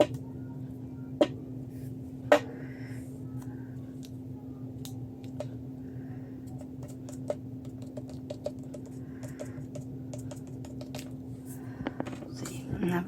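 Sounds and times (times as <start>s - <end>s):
steady low hum: 0.0s - 13.0s
paper materials clicking and tapping: 6.4s - 11.2s.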